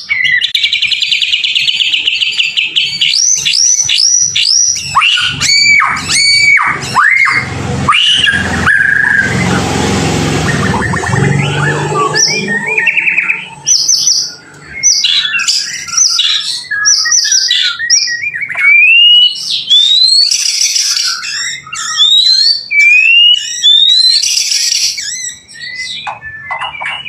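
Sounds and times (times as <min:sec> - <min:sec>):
songbird singing whistles: 0:00.0 - 0:09.7, 0:10.4 - 0:27.0
loud scratchy bursts: 0:05.3 - 0:13.8.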